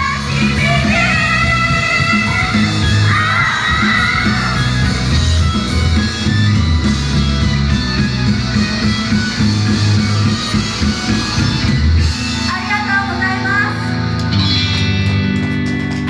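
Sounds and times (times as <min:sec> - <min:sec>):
bass and drum beat: 0:00.0 - 0:12.6
electric guitar: 0:00.0 - 0:16.0.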